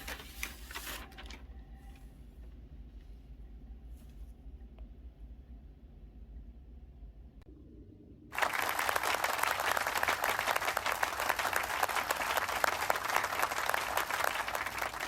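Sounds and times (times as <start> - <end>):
hands clapping: 8.4 - 15.0.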